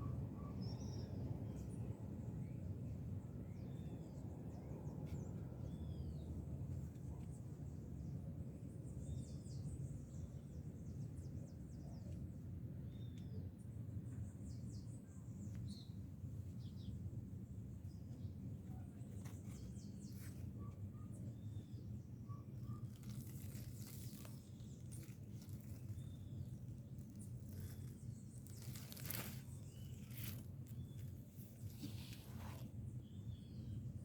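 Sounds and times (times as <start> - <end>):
brief crackles: 27.4 - 32.7.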